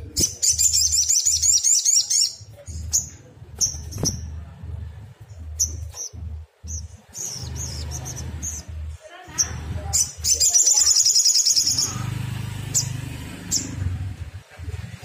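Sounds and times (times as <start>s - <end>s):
bird twittering and chirping: 0.0s - 4.5s, 5.3s - 14.2s
low hum: 2.4s - 10.4s.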